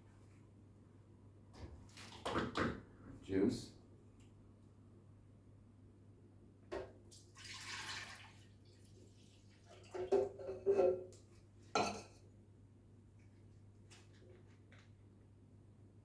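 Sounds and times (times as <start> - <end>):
juice being poured: 7.1 - 10.0
kitchenware knocking and clinking: 11.8 - 12.2.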